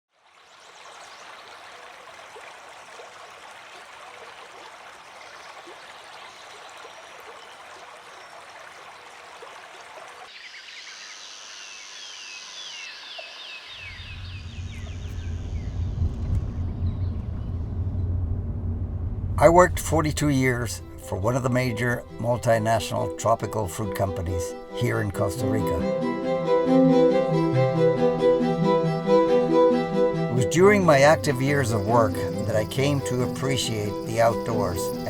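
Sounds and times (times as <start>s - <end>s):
low music: 19.0s - 35.0s
stream rushing: 29.1s - 35.0s.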